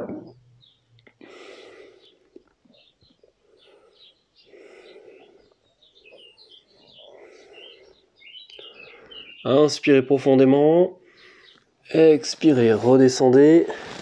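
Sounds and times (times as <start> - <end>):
faint bird chirps: 0.3 - 10.0.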